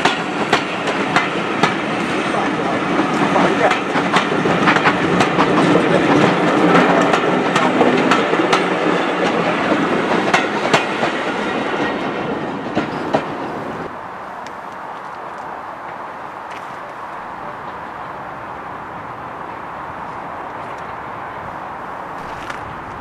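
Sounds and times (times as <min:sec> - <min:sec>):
train wheels clicking over rail joints: 0:00.0 - 0:13.5.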